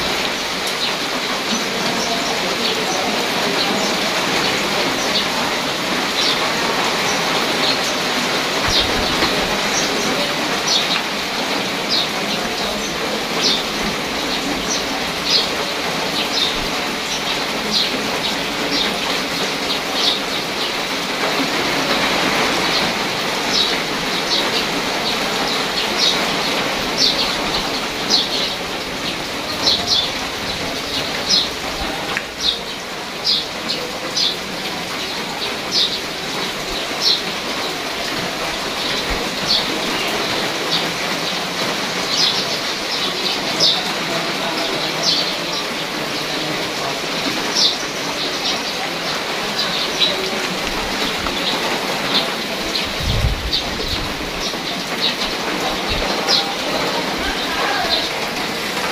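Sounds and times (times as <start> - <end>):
rain on foliage and grass: 0.0 - 58.9
bird chirping: 8.6 - 11.1.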